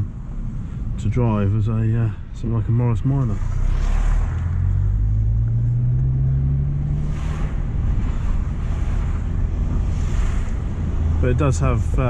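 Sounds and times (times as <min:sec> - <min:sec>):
road noise: 0:00.0 - 0:12.0
car engine accelerating: 0:02.9 - 0:12.0.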